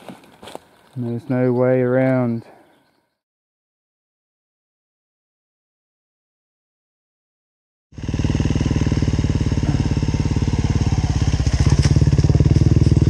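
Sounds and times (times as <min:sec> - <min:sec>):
motorcycle engine running: 0:07.9 - 0:13.0.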